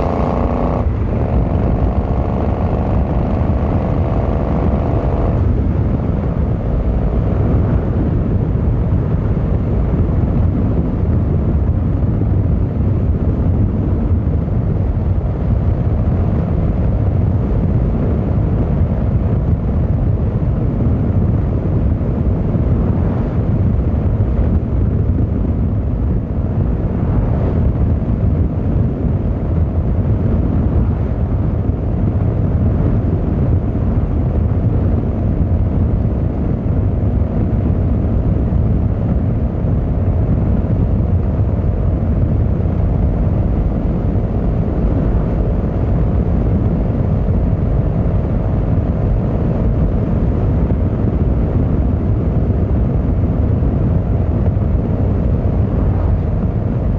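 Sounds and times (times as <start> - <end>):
motorcycle engine: 0.0 - 8.2
road noise: 0.0 - 56.9.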